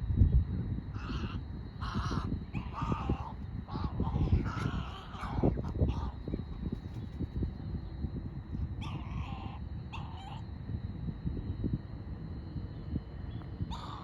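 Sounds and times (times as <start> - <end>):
steady low rumble: 0.0 - 14.0
bird calling: 1.0 - 7.2, 8.8 - 10.4, 13.7 - 14.0.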